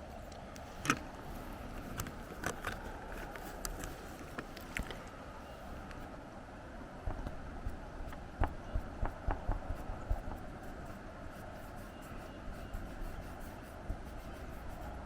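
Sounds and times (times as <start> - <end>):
wind on microphone: 6.8 - 15.0
pencil scratching on paper: 9.7 - 15.0.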